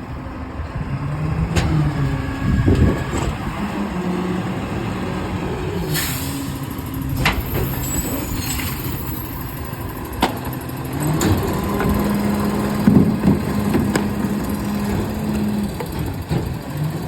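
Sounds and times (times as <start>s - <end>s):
diesel engine running: 0.0s - 17.0s
air brake hiss: 5.8s - 9.5s.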